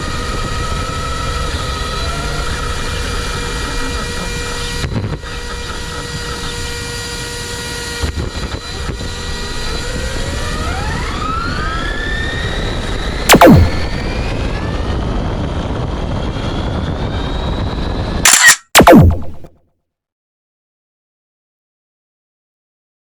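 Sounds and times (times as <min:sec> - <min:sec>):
sharp falling sweep: 0:13.3 - 0:14.0, 0:18.3 - 0:19.5.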